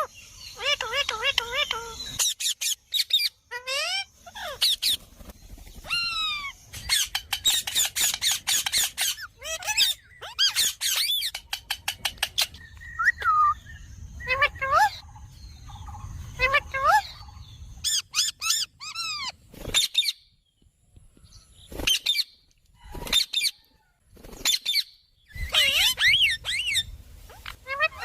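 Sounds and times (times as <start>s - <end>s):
parakeet shrill calls: 0.0s - 5.0s, 5.8s - 15.1s, 16.3s - 20.2s, 24.4s - 28.0s.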